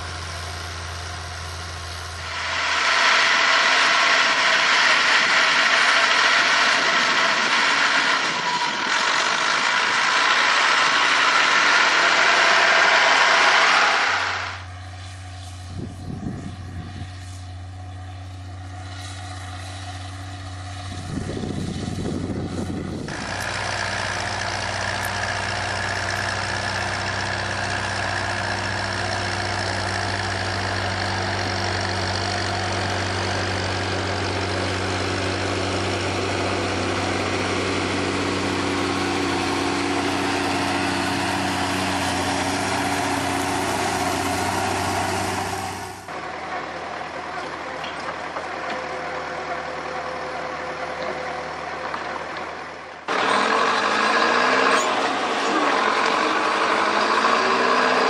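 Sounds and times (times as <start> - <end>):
machine engine humming: 0.0 - 58.0
quieter engine running: 0.0 - 58.0.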